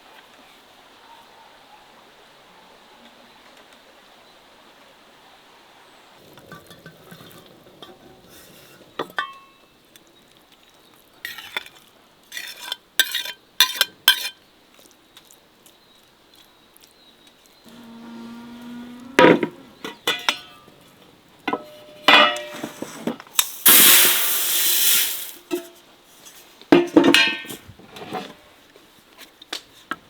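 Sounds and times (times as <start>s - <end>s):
metal utensil clinking on pot: 9.0s - 9.6s, 12.4s - 14.4s, 19.2s - 20.7s, 21.5s - 22.8s, 26.8s - 27.6s
utensil scraping pot: 11.3s - 14.4s
faint hiss: 17.6s - 26.7s.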